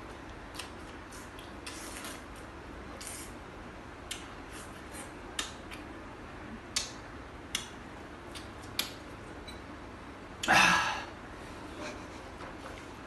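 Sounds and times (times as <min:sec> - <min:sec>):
eating clicks and smacks: 0:00.5 - 0:01.8, 0:04.0 - 0:04.3, 0:05.3 - 0:05.9, 0:06.7 - 0:09.1.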